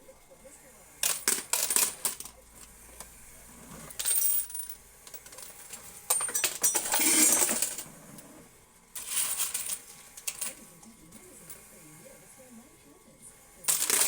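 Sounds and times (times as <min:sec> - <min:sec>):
coins clattering in machine: 0:01.0 - 0:02.7, 0:03.7 - 0:08.3, 0:09.0 - 0:10.6, 0:13.6 - 0:14.0.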